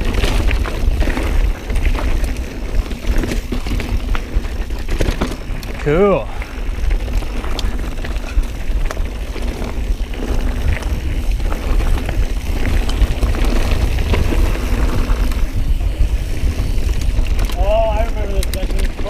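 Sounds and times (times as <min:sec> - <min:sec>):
bike rattling over rocks: 0:00.0 - 0:19.0
low rumble of bike tyres: 0:00.0 - 0:19.0
wind on microphone: 0:05.6 - 0:19.0.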